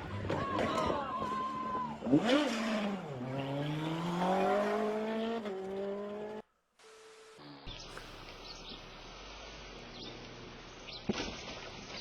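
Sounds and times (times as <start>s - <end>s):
engine accelerating: 1.8s - 6.4s.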